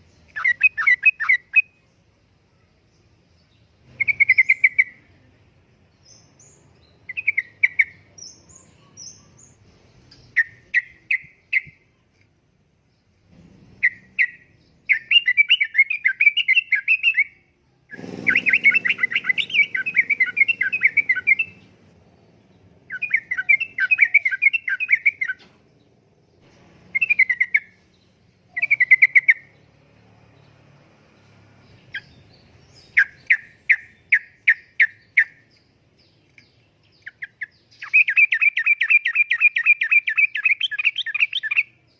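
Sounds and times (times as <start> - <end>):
bulbul singing chattering phrases: 0.0 - 12.2, 13.8 - 30.6.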